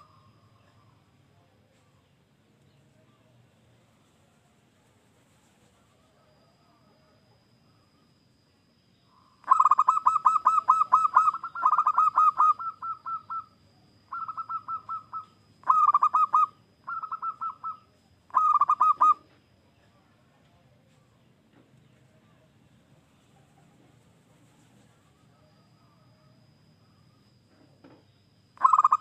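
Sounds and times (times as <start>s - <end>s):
faint steady high tone: 0.0s - 29.0s
dove cooing: 9.4s - 19.4s, 28.6s - 29.0s.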